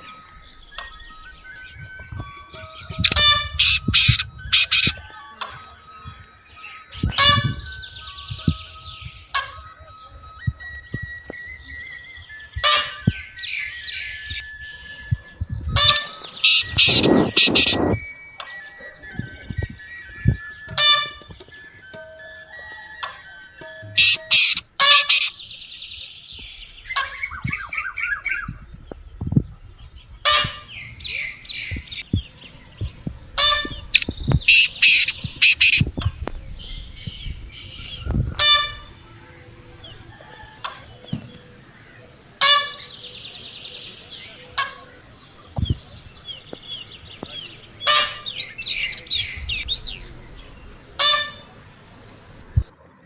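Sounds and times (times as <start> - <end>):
birds chirping and trilling: 0.0 - 53.0
low thumps: 28.4 - 39.0.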